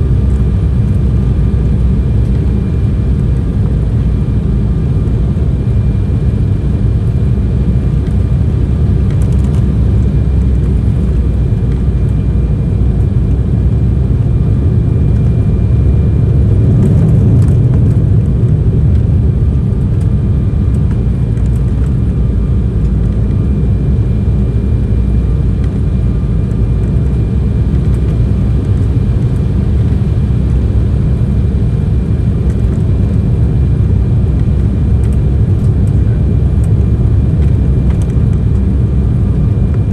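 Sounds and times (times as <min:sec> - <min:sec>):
airliner cabin rumble: 0:00.0 - 0:39.9
faint whine tones: 0:00.0 - 0:39.9.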